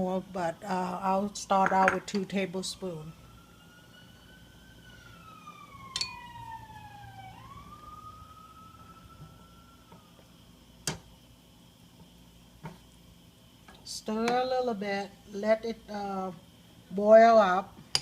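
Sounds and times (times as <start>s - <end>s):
faint siren wailing: 2.2s - 10.6s.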